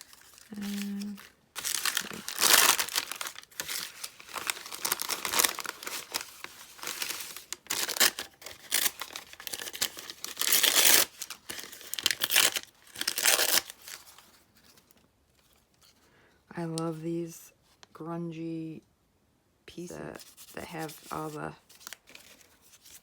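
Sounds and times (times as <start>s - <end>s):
paper tearing and crinkling: 0.0s - 14.3s.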